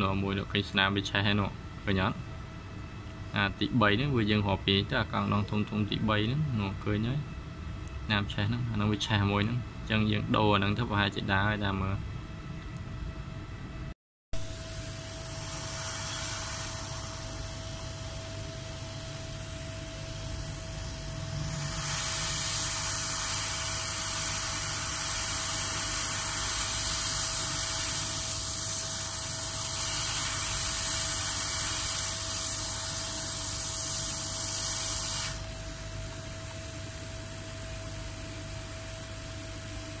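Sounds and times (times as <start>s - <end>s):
faint constant whine: 0.0s - 40.0s
blowing air hiss: 14.8s - 39.6s.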